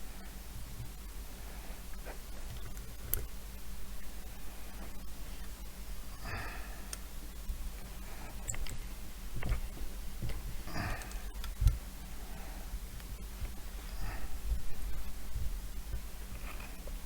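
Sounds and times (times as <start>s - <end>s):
soft breaths: 0.0s - 3.1s, 4.1s - 5.5s, 6.1s - 17.0s.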